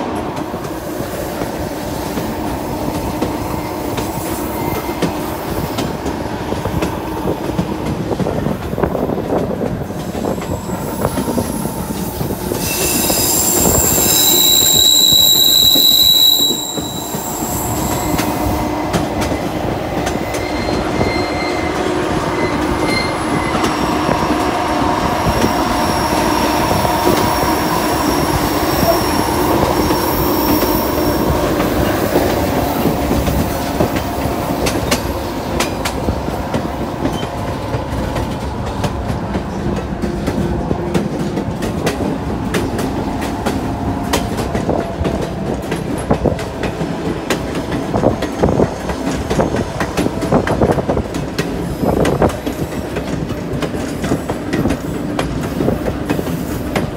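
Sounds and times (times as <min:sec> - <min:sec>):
train wheels rumbling on rails: 0:00.0 - 0:56.9
high wheel squeal: 0:12.5 - 0:18.6, 0:20.2 - 0:24.4, 0:25.2 - 0:32.9.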